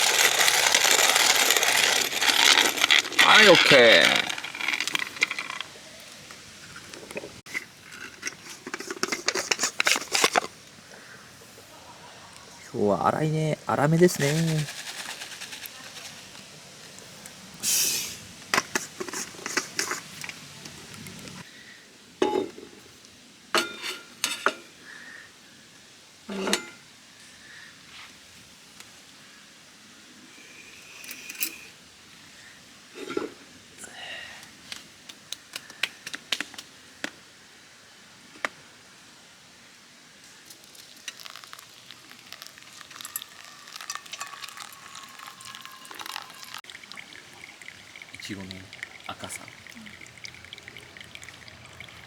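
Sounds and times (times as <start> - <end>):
coffee grinder crunching beans: 0.0 - 5.8, 40.4 - 52.0.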